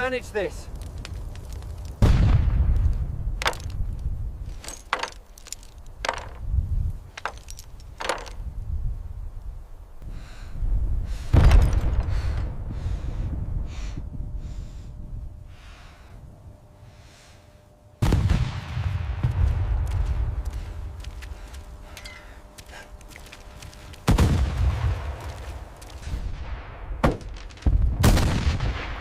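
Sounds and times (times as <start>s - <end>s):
low rumble: 0.5s - 9.4s, 17.6s - 29.0s
heavy explosion boom: 2.0s - 3.4s, 18.0s - 20.4s, 24.1s - 25.4s, 26.1s - 29.0s.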